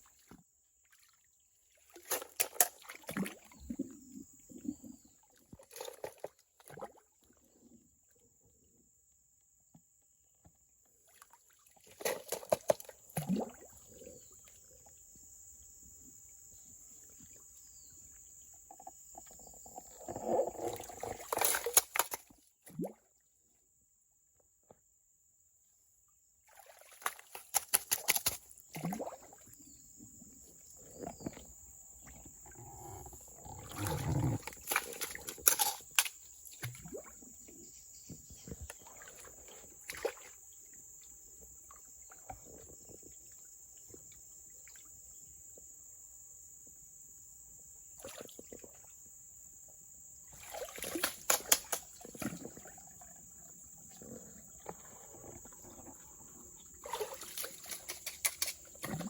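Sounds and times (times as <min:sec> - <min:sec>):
water splashing and trickling: 0:00.0 - 0:07.4, 0:11.0 - 0:14.0, 0:18.7 - 0:23.1, 0:26.4 - 0:29.6, 0:30.8 - 0:43.4, 0:50.3 - 0:59.0.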